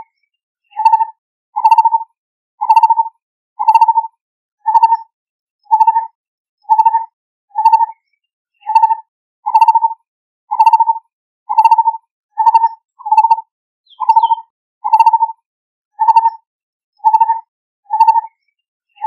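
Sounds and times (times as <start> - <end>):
barbet calling: 3.6 - 4.0, 8.6 - 9.9, 11.5 - 15.2.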